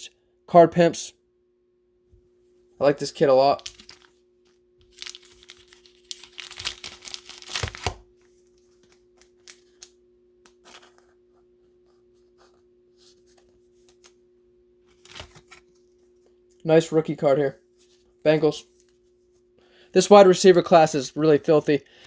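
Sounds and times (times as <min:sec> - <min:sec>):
faint steady hum: 0:00.0 - 0:22.0
plastic wrapper crinkling and tearing: 0:03.6 - 0:04.2, 0:04.8 - 0:10.0, 0:14.9 - 0:15.9.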